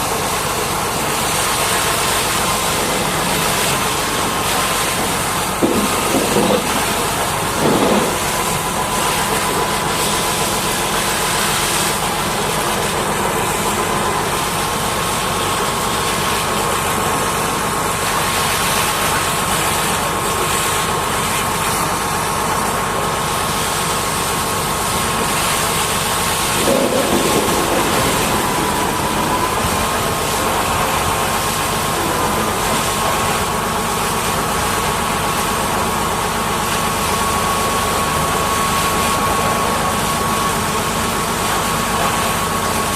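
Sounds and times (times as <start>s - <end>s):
pressure washer water jet: 0.0s - 42.9s
pump whine: 0.0s - 42.9s.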